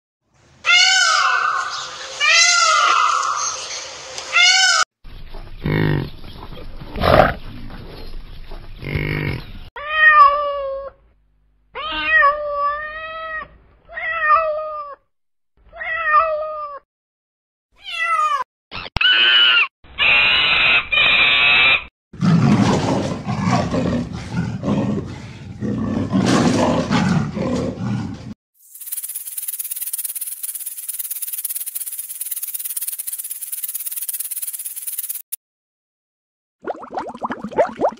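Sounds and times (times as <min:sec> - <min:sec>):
peacock calling: 0:00.6 - 0:04.8
cat meowing: 0:11.8 - 0:15.0.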